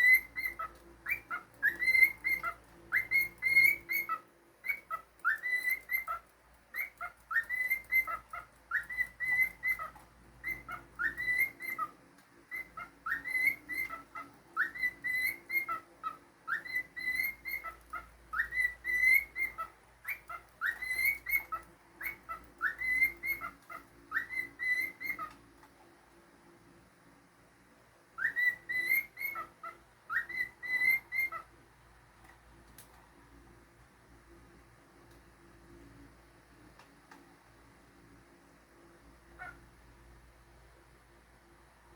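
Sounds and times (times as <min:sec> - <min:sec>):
cockatiel whistling a tune: 0:00.0 - 0:25.4, 0:28.2 - 0:31.5.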